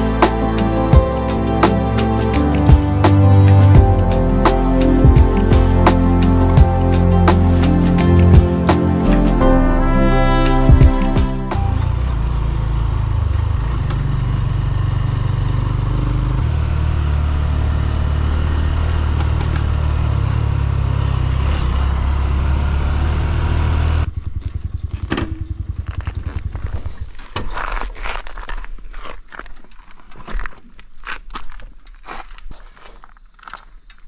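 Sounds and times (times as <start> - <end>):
motorcycle engine running: 0.0 - 9.4, 10.5 - 27.3.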